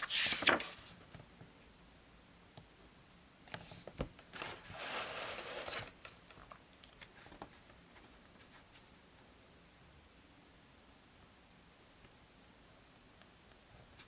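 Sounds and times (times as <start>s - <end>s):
paper rustling: 0.0s - 1.0s, 3.5s - 8.9s.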